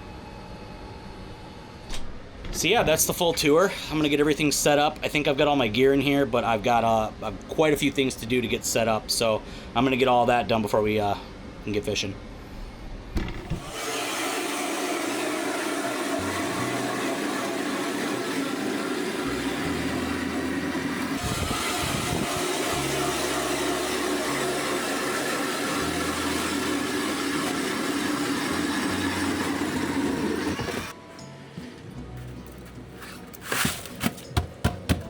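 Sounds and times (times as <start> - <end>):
power ice auger drilling: 13.5 - 31.0.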